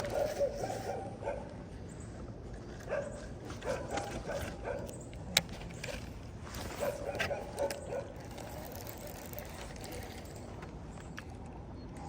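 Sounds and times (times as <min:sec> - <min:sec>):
dog barking: 0:00.0 - 0:01.6, 0:02.8 - 0:04.9, 0:06.8 - 0:08.2.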